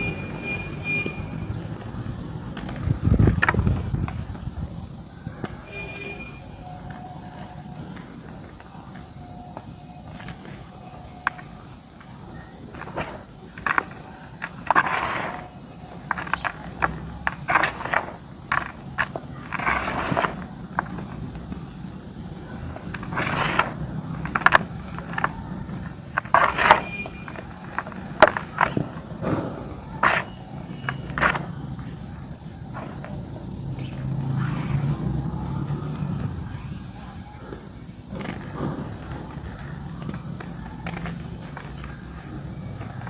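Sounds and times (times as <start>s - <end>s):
dry clay crunching and crumbling: 6.6s - 32.1s, 37.4s - 43.0s.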